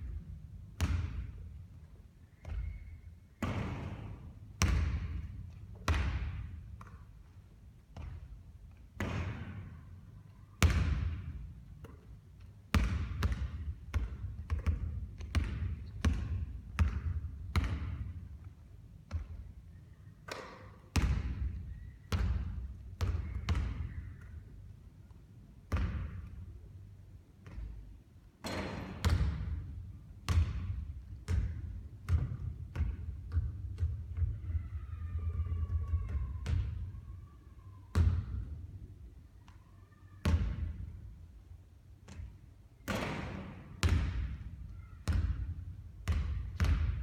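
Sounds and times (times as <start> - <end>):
basketball bouncing on court: 0.0 - 1.6, 2.4 - 8.4, 9.0 - 9.7, 10.6 - 12.1, 12.7 - 18.4, 19.1 - 19.5, 20.3 - 24.4, 25.7 - 26.4, 27.4 - 37.0, 37.9 - 38.6, 40.2 - 40.9, 42.0 - 47.0.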